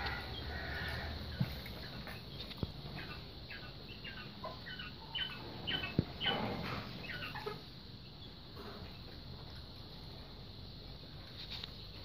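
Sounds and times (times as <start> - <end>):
bird chirping: 0.0 - 9.2.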